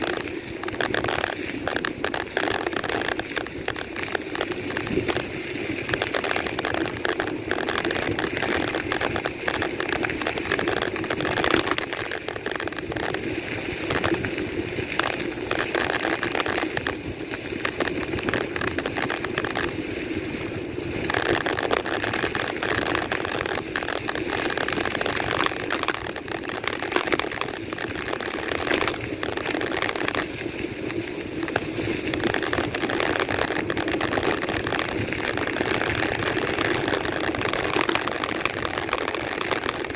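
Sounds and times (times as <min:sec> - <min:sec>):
bike clicking and rattling: 0:00.0 - 0:39.9
bike tyres on rough ground: 0:00.0 - 0:39.9.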